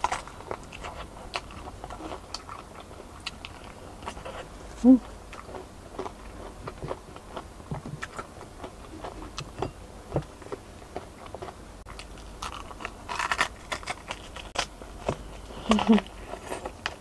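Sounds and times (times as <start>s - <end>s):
wet chewing: 0.0s - 9.6s, 10.4s - 17.0s.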